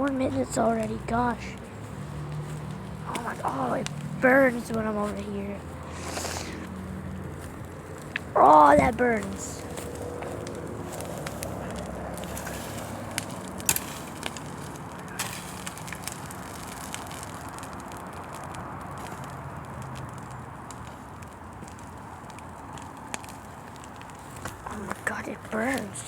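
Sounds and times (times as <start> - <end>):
bonfire burning: 0.0 - 26.0
fire popping and crackling: 0.0 - 26.0.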